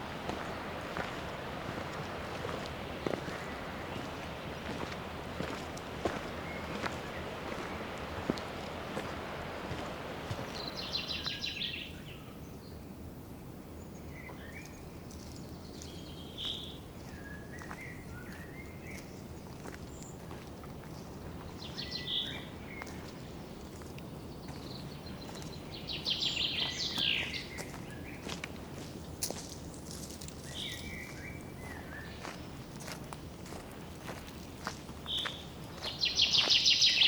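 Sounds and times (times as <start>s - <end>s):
songbird rapid trill: 35.1s - 37.0s.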